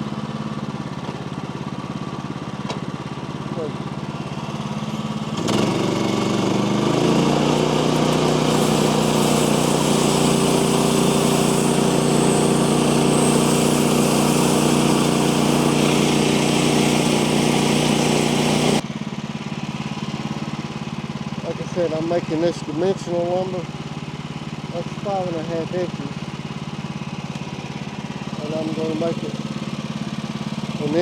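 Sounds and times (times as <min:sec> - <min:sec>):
sawmill engine revving: 0:03.6 - 0:18.8, 0:27.6 - 0:31.0
saw blade cutting log: 0:04.7 - 0:18.8.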